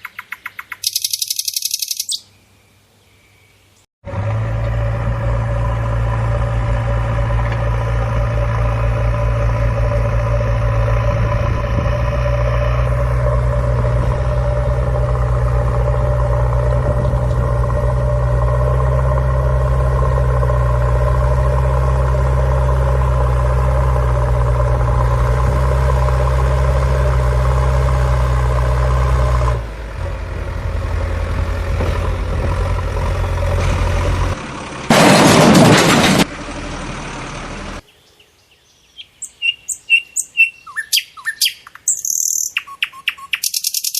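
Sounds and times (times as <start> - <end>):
engine idling: 4.0 - 37.8.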